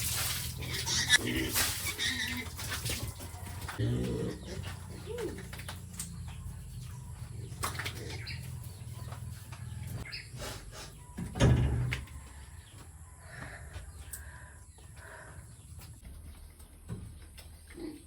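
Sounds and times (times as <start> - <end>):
birds calling: 0.5 - 18.0.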